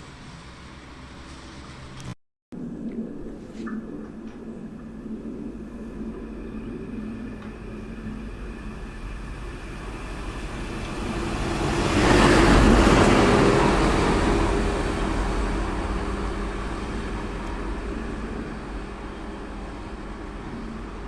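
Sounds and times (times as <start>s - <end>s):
train passing: 0.0s - 2.1s, 4.1s - 21.0s.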